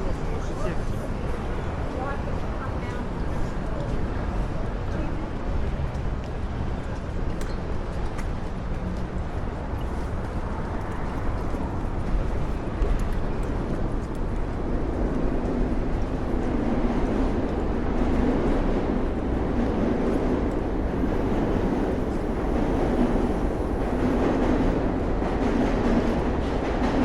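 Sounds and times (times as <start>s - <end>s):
city street traffic: 0.0s - 27.0s.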